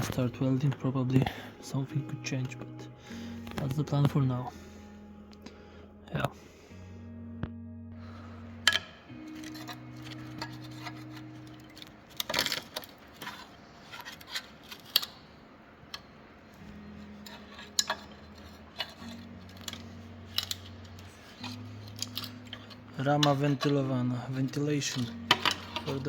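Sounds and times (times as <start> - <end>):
soft background music: 0.0 - 26.0
metal tools clinking: 8.6 - 15.3, 16.7 - 26.0.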